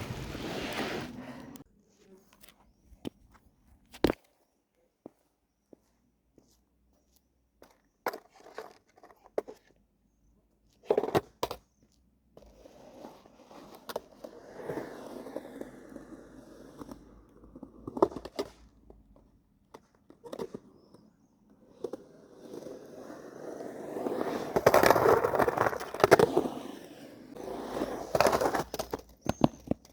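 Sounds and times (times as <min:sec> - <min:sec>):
skateboard wheels rolling: 0:00.0 - 0:01.6, 0:12.4 - 0:19.0, 0:19.7 - 0:29.9.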